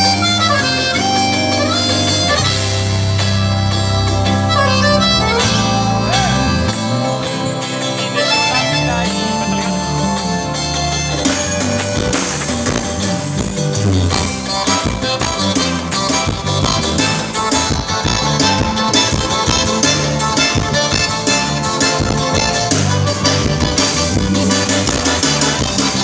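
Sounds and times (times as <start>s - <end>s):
live band instrumental music: 0.0s - 26.0s.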